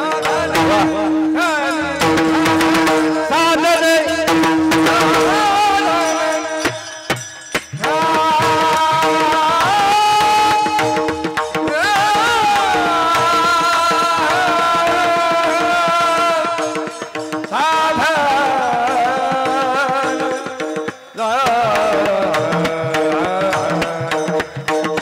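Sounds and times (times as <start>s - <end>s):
person singing long notes: 0.0s - 6.8s, 7.8s - 20.5s
sustained accompaniment: 0.0s - 25.0s
tabla drumming: 0.0s - 25.0s.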